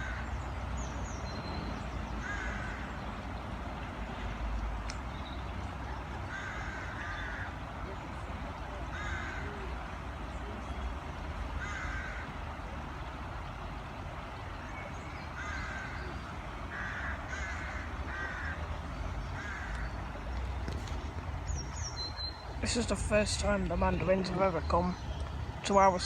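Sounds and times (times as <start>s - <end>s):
harsh cawing bird calls: 0.0s - 4.6s, 5.3s - 20.4s.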